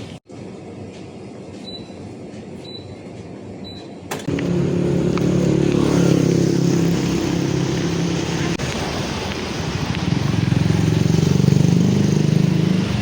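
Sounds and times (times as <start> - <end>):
city traffic rumble: 0.0 - 13.0
vehicle engine running close by: 4.3 - 13.0.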